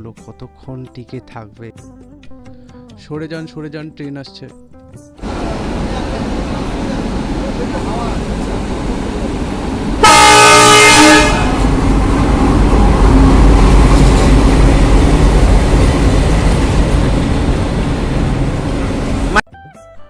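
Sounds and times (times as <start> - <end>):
train rumbling: 5.2 - 19.4
train horn blast: 10.0 - 11.9.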